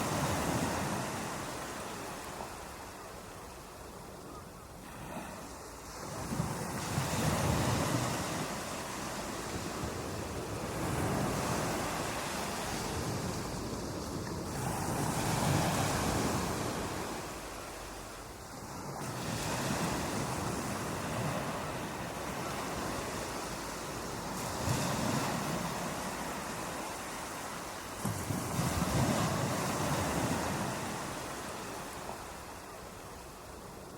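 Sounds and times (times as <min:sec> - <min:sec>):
ocean waves breaking on beach: 0:00.0 - 0:33.9.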